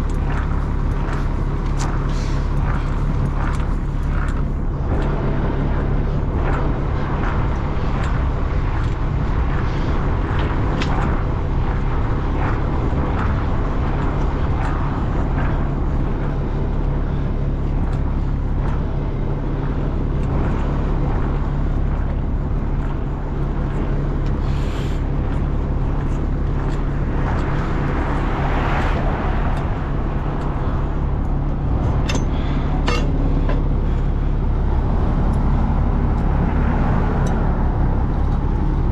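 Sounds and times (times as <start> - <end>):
clanks and rattles: 0.0 - 38.9
large engine running: 0.0 - 38.9.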